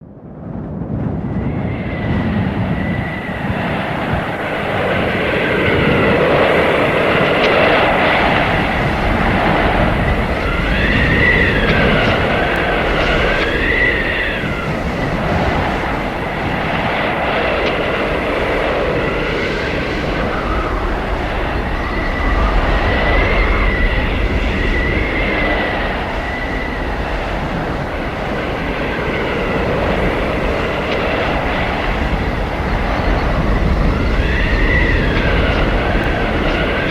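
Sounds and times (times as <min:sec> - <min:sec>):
blizzard wind gusting: 0:00.0 - 0:36.9
high thin wind whistle: 0:01.4 - 0:36.9.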